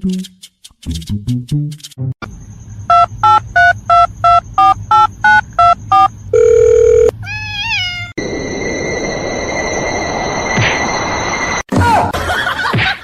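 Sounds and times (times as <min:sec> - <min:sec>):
long steady beep: 0:02.8 - 0:07.1
touch-tone keypad beeps: 0:02.9 - 0:07.1.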